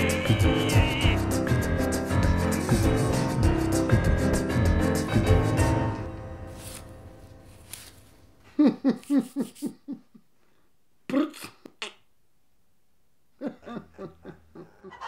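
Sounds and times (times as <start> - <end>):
man laughing: 0.0 - 1.3, 8.4 - 10.3, 13.4 - 15.0
background music: 0.0 - 8.1.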